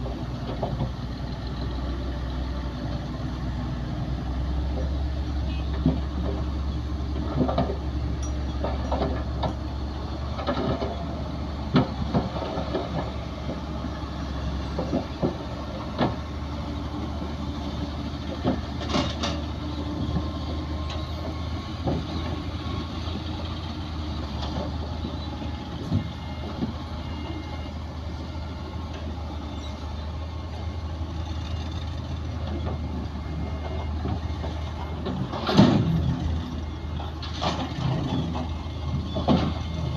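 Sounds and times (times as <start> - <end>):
heavy diesel engines running: 0.0 - 39.9
metallic clanks and knocks: 7.2 - 11.0, 18.3 - 19.5, 33.6 - 36.2.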